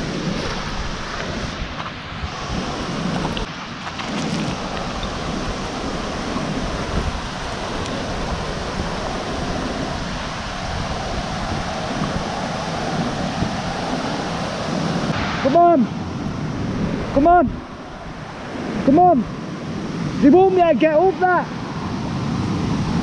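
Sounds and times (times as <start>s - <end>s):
waterfall roaring: 4.2s - 22.1s.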